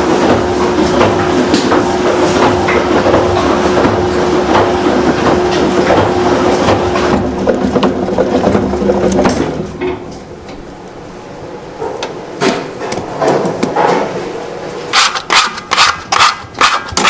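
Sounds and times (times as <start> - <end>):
machine humming and rattling: 0.0 - 17.0
sharp knocks and clatters: 0.2 - 10.2, 11.8 - 14.2.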